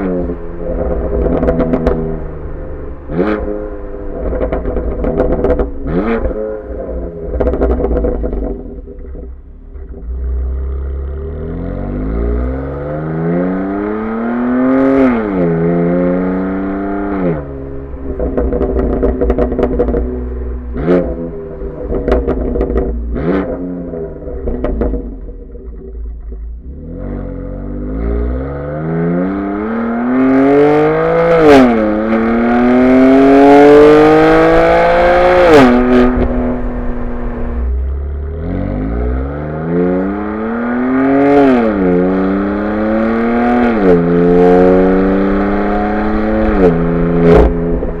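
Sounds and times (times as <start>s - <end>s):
exhaust cracks on shifts: 4.0s - 10.6s, 17.8s - 26.7s
car engine accelerating hard: 26.6s - 48.0s.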